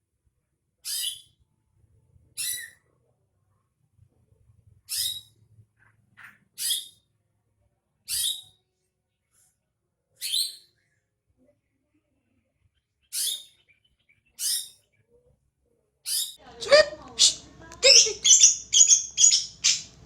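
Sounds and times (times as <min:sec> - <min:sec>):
faint low hum: 0:15.1 - 0:20.0
bird giving high calls: 0:16.6 - 0:20.0.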